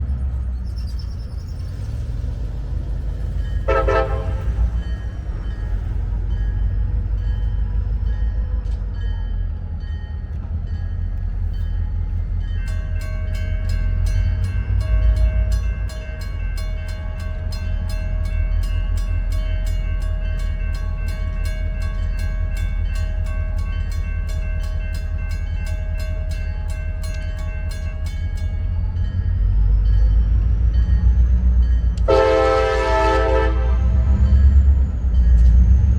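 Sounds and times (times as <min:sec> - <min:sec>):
diesel locomotives rumbling: 0:00.0 - 0:35.9
train horn toot: 0:03.6 - 0:04.8, 0:32.0 - 0:34.3.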